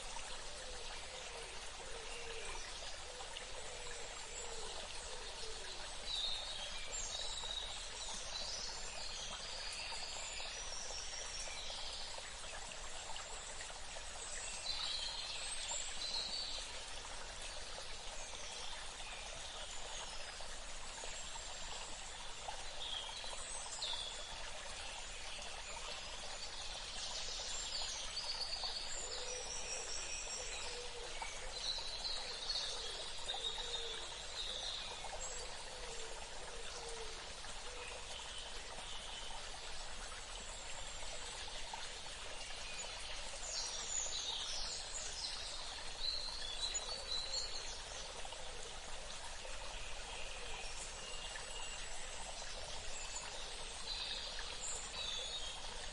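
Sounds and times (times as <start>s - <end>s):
running water: 0.0s - 55.9s.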